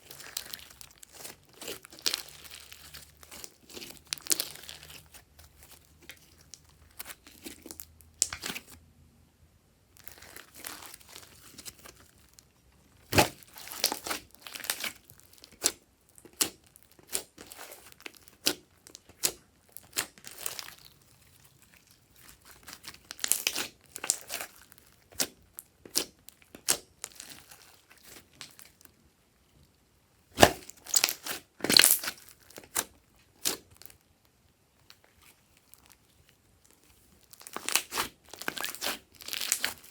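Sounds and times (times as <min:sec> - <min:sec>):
slime squishing and crackling: 0:00.0 - 0:08.8, 0:10.0 - 0:28.9, 0:30.3 - 0:34.0, 0:34.8 - 0:39.9.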